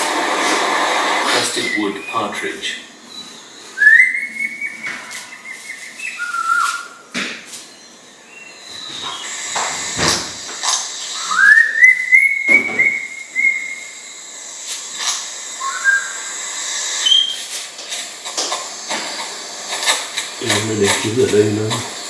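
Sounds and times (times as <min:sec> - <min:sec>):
bird rising whistled calls: 0:01.2 - 0:17.7.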